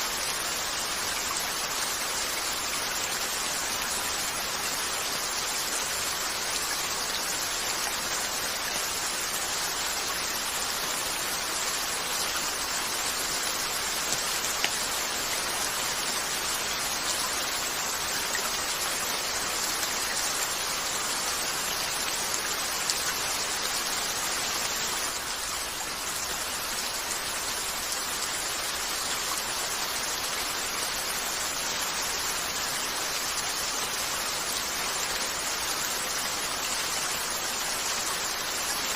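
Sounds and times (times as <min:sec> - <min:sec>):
rain on a window: 0:00.0 - 0:38.9.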